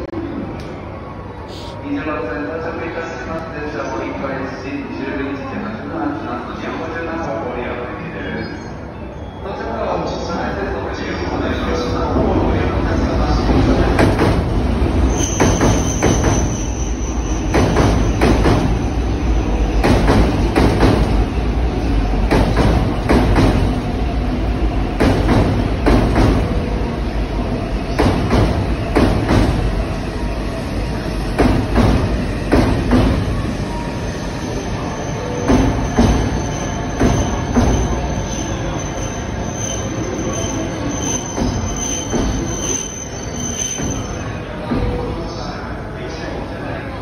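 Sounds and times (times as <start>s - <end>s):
train rumbling: 10.1s - 47.0s
thin high squeal: 15.1s - 17.5s, 36.2s - 44.4s.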